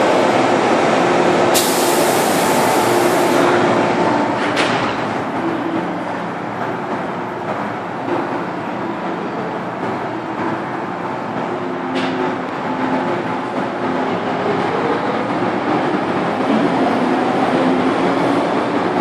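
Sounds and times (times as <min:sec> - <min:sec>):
train wheels rumbling on rail: 0:00.0 - 0:19.0
high hiss: 0:01.6 - 0:03.4.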